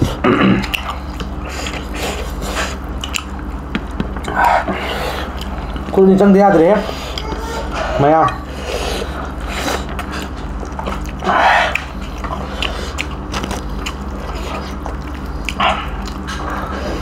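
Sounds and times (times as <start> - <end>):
people chewing and biting: 0.0 - 6.1, 6.8 - 17.0
steady low hum: 0.0 - 17.0.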